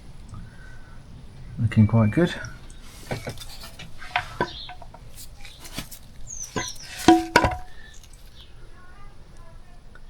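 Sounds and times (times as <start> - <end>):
metal engine parts clicking and knocking: 2.6 - 8.3.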